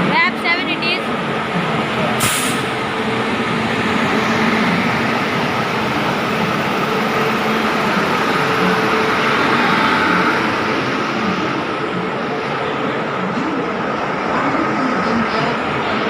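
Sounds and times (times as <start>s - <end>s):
train rumble and hum: 0.0s - 16.0s
brief high hiss: 2.2s - 2.7s.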